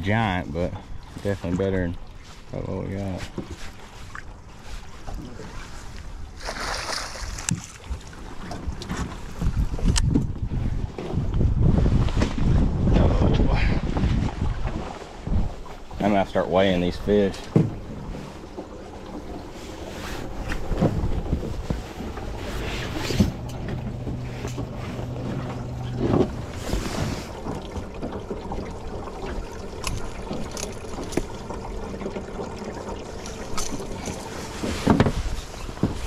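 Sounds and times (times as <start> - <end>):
wind on microphone: 7.5 - 16.0, 19.4 - 27.9
low motor hum: 7.9 - 36.0
gear clattering in metal boat: 16.2 - 36.0.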